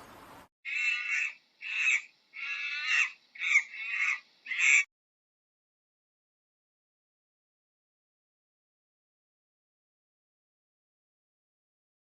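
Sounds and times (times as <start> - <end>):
bird harsh calls: 0.7 - 4.9.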